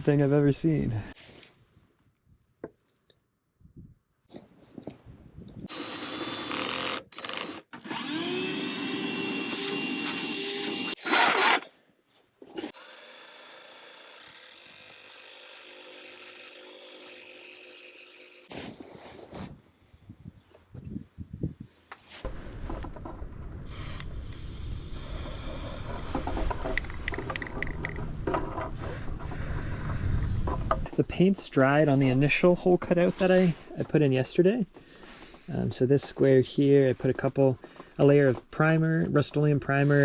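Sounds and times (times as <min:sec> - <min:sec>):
power tools drilling and cutting: 0:05.7 - 0:11.7, 0:12.7 - 0:18.5, 0:23.7 - 0:27.6.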